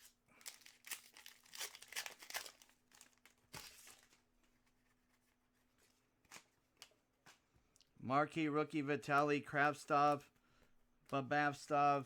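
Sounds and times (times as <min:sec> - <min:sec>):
card wrappers crinkling: 0:00.0 - 0:04.2.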